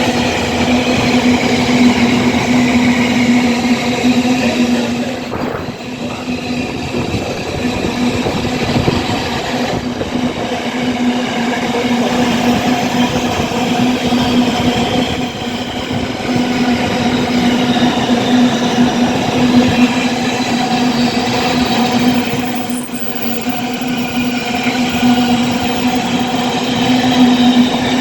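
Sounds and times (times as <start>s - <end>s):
freight train passing: 0.0s - 28.0s
wagons rolling over rails: 11.8s - 28.0s.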